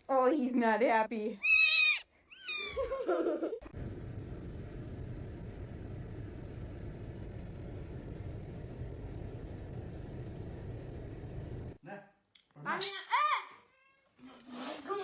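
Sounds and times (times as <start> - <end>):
steady low rumble: 3.7 - 11.8.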